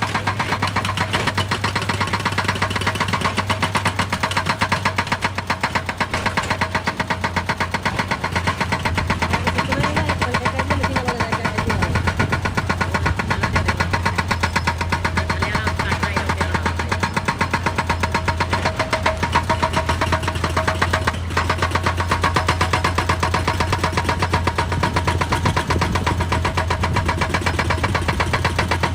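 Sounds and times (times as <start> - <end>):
heavy diesel machinery running: 0.0 - 28.9.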